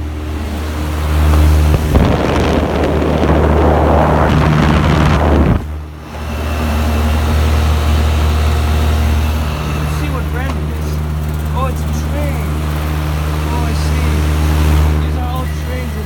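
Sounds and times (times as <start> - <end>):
wind buffeting microphone: 0.0 - 9.7
heat pump humming: 0.0 - 16.0.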